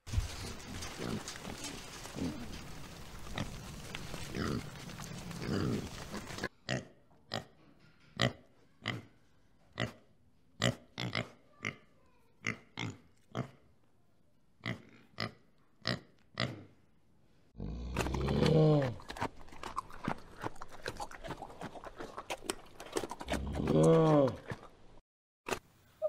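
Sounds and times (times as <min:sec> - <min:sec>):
warthog crunching feed: 0:00.1 - 0:06.5, 0:17.6 - 0:25.6
pig grunting: 0:00.7 - 0:06.8, 0:17.6 - 0:24.7.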